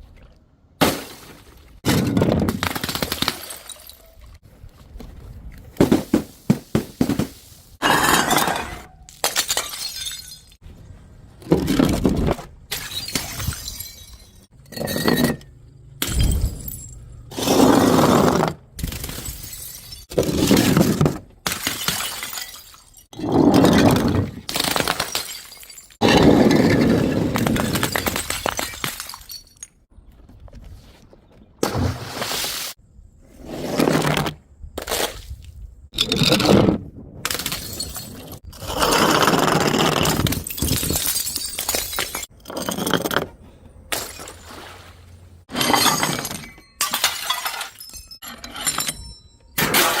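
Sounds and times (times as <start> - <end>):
glass bottles smashing: 1.9 - 4.2, 5.8 - 10.6, 12.7 - 15.4, 18.9 - 29.8, 37.3 - 38.5, 40.0 - 43.0, 43.9 - 44.7, 45.5 - 50.0
glass shards tinkling: 45.6 - 49.6.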